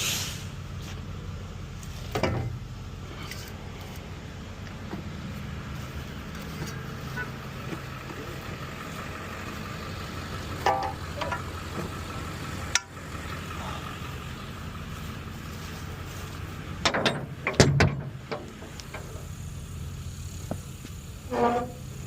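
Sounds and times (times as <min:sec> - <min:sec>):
engine idling: 0:00.0 - 0:22.0
engine knocks and clanks: 0:00.0 - 0:22.0.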